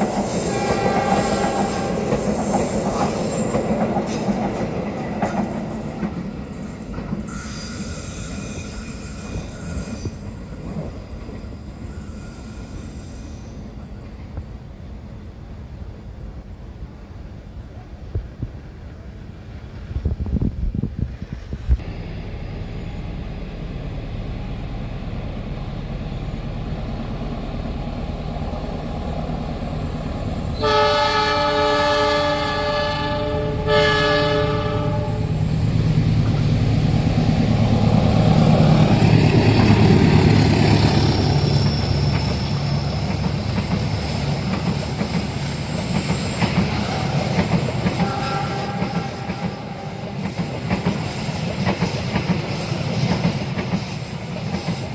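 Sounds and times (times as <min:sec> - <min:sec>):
train rumbling past: 0:00.0 - 0:54.9
train horn blasts: 0:00.4 - 0:02.3, 0:30.6 - 0:35.4, 0:47.9 - 0:50.2.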